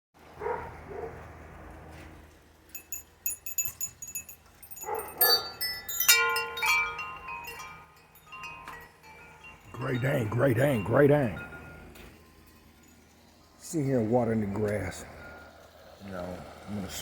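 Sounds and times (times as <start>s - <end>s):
metal wind chimes tinkling: 2.7s - 15.4s.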